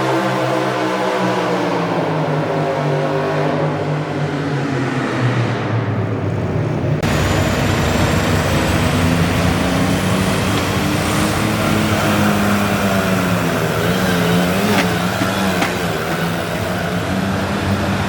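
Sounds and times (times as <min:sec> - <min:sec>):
tractor engine at high revs: 0:07.0 - 0:18.0.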